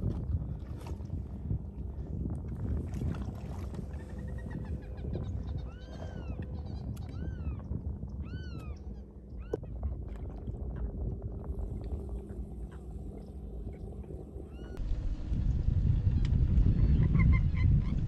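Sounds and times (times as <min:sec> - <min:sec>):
steady low rumble: 0:00.0 - 0:18.0
birds mewing calls: 0:04.0 - 0:09.6.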